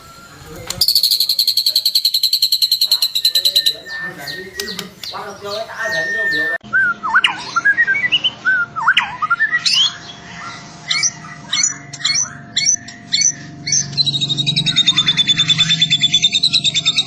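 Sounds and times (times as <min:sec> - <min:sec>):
bird singing whistled notes: 0:00.0 - 0:10.2.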